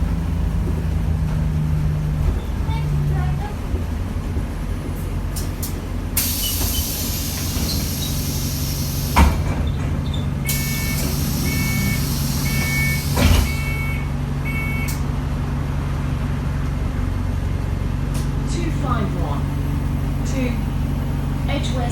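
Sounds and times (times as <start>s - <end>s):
bus engine running: 0.0s - 21.9s
bus door thump: 5.3s - 15.0s
compressed air hiss: 6.2s - 9.2s, 10.5s - 13.2s
electronic warning beeps: 10.4s - 15.0s.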